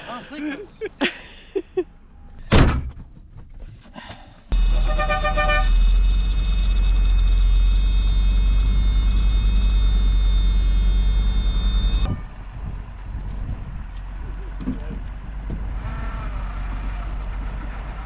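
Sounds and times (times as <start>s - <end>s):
diesel truck engine rumbling: 4.5s - 18.0s.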